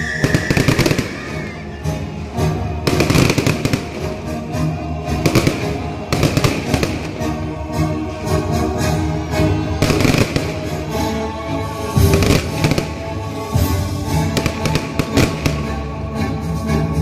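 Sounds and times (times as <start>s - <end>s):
fireworks banging and crackling: 0.0s - 2.0s, 2.7s - 7.6s, 9.6s - 11.1s, 11.8s - 15.9s
music: 0.0s - 17.0s.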